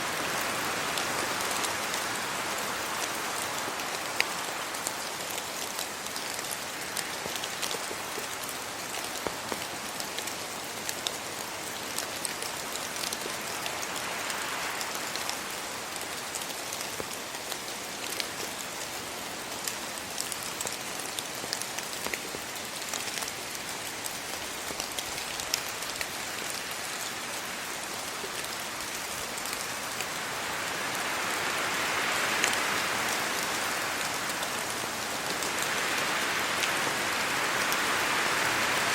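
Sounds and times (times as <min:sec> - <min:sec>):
rain falling on leaves: 0:00.0 - 0:38.9
wind gusting through trees: 0:00.0 - 0:38.9.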